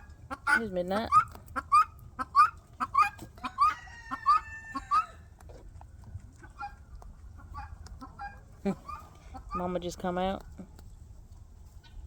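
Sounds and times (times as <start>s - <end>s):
farmyard fowl calling: 0.0s - 5.6s, 6.2s - 9.8s, 11.8s - 12.0s.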